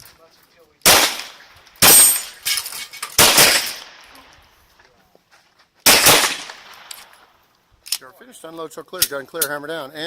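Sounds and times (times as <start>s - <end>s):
pistol shots with ringing decay: 0.8s - 2.4s, 3.2s - 4.1s, 5.9s - 6.9s.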